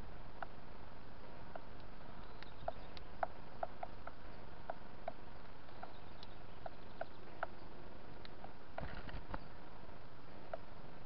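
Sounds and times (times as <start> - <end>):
steady background hiss: 0.0 - 11.0
bird pecking ticks: 0.4 - 0.6, 1.4 - 9.4, 10.4 - 10.7.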